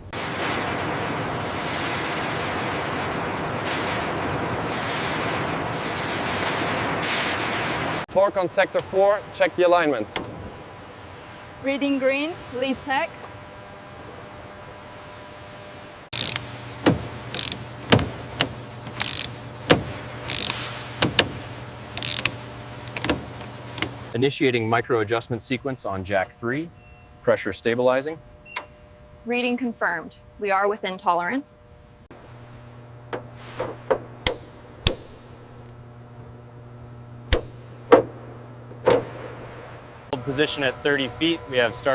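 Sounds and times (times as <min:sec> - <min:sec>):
steady low hum: 0:00.0 - 0:41.9
sharp mechanism clicks: 0:16.1 - 0:24.0, 0:34.2 - 0:35.2, 0:37.3 - 0:37.6
sharp knocks: 0:16.8 - 0:21.4, 0:33.1 - 0:35.2, 0:37.3 - 0:38.2, 0:38.8 - 0:39.4.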